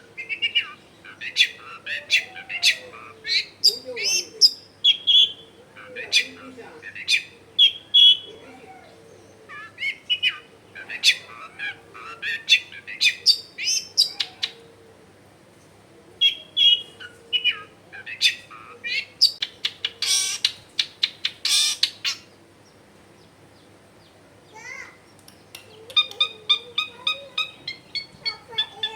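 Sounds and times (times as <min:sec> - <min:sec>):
bird singing chirps and whistles: 0:16.2 - 0:22.2
loud scratchy bird call: 0:16.2 - 0:22.3.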